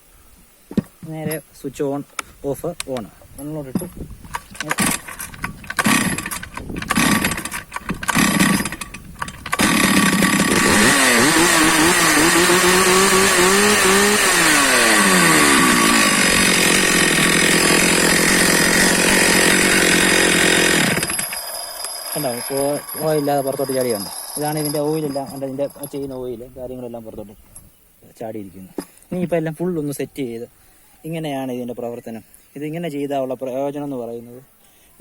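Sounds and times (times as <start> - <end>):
starter cord pulls: 3.7 - 26.1
chainsaw engine revving: 4.6 - 26.0.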